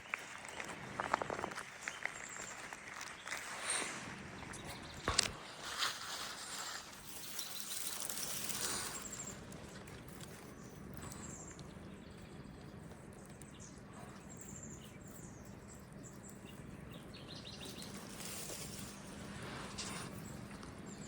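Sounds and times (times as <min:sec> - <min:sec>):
outdoor background noise: 0:00.0 - 0:21.0
bird chirps and twittering: 0:07.0 - 0:21.0.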